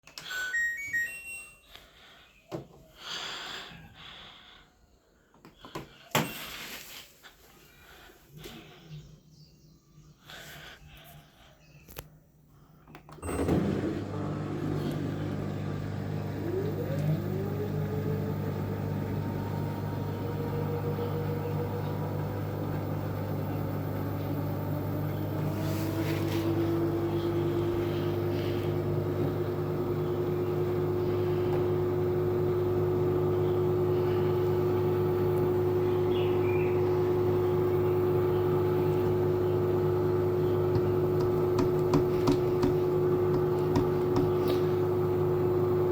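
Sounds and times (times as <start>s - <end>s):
washing machine motor hum: 13.1s - 45.9s
motor whine rising in pitch: 13.2s - 45.9s.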